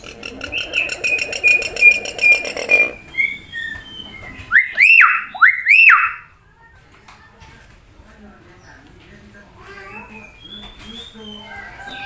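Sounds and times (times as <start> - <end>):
myna bird whistling: 0.5 - 6.3, 9.9 - 12.0.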